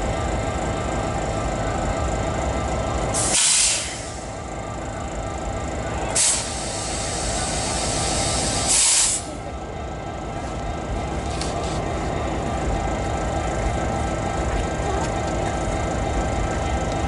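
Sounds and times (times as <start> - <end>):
diesel locomotive idling: 0.0 - 17.0
air hissing bursts: 3.2 - 4.3, 6.2 - 9.3.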